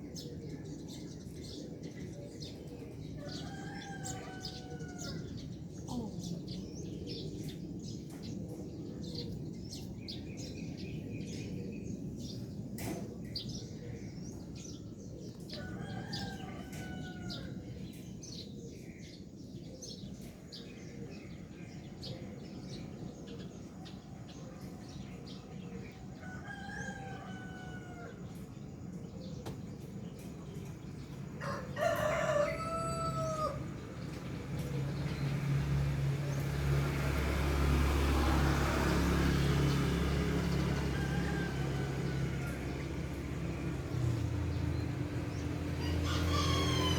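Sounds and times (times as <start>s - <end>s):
rooster crowing: 3.2s - 5.4s, 15.6s - 17.6s, 26.2s - 28.4s, 31.4s - 33.7s, 40.4s - 43.2s, 45.7s - 46.9s
low engine hum: 32.3s - 46.9s.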